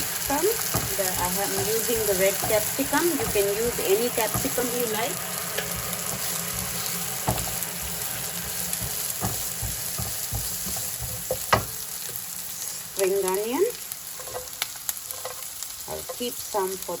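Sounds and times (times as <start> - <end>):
vegetables sizzling in oil: 0.0 - 17.0
spoon knocking against pan: 8.8 - 11.8.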